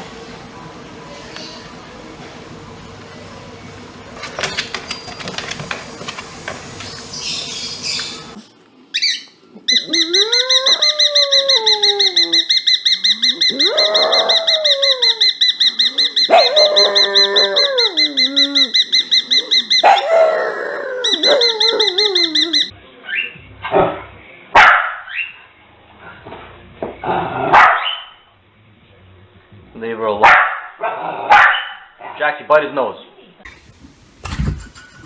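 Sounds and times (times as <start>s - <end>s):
dog whining and howling: 9.6s - 22.8s
dog barking: 16.2s - 17.7s, 19.7s - 20.4s, 24.6s - 25.1s, 27.5s - 28.2s, 30.2s - 31.9s.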